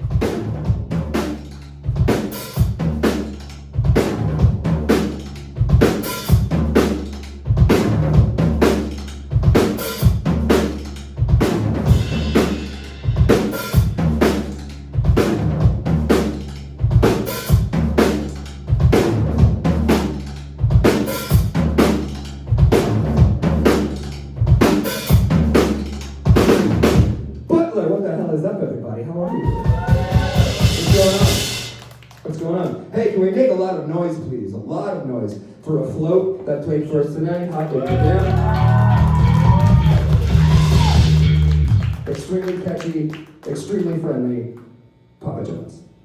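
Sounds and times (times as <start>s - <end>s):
bass drum and snare hits: 0.0s - 27.3s, 29.6s - 31.8s, 38.0s - 42.1s
live rock band playing: 29.8s - 31.7s, 37.9s - 41.9s.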